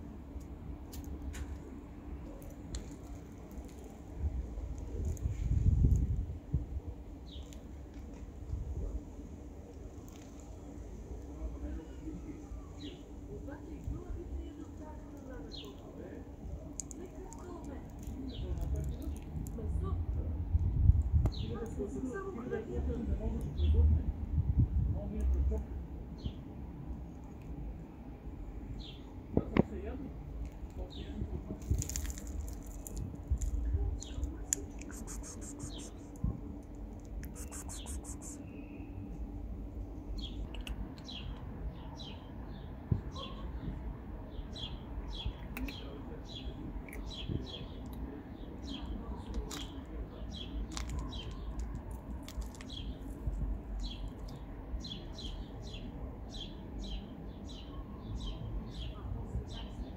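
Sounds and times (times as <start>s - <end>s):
low outdoor rumble: 0.0s - 59.9s
small birds chirping: 7.2s - 7.7s, 14.0s - 19.3s, 30.8s - 36.2s, 37.2s - 39.0s, 40.1s - 53.2s, 53.8s - 59.9s.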